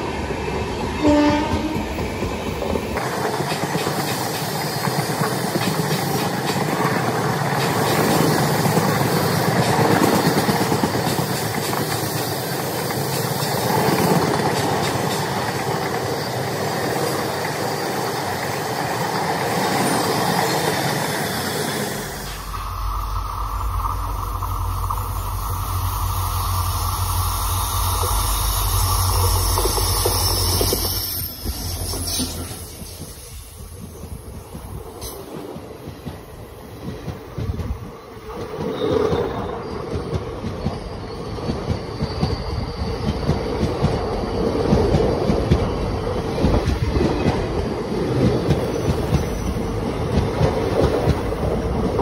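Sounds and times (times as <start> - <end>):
passenger train passing: 0.0 - 52.0
wheels clattering on rail: 1.0 - 22.8, 29.1 - 52.0.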